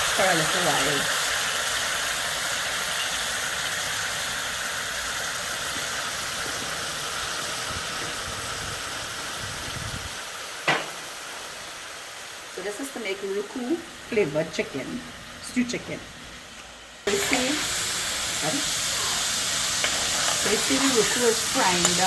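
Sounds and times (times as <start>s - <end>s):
oil sizzling in a pot: 0.0s - 15.8s, 16.4s - 22.0s.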